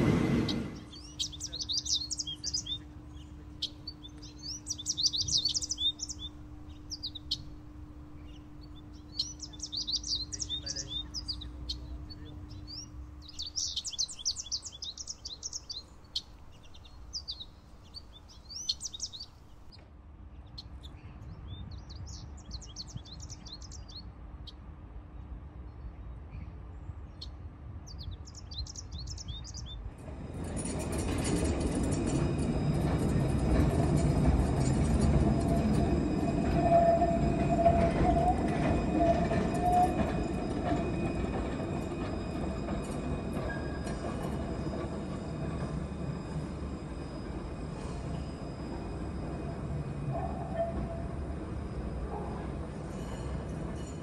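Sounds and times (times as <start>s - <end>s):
small birds twittering: 0.3s - 19.8s, 20.4s - 24.0s, 27.1s - 29.9s.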